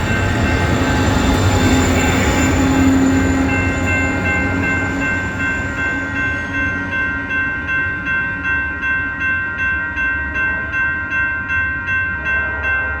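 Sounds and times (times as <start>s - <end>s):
railway warning bell ringing: 0.0s - 13.0s
train rumbling past: 0.0s - 13.0s.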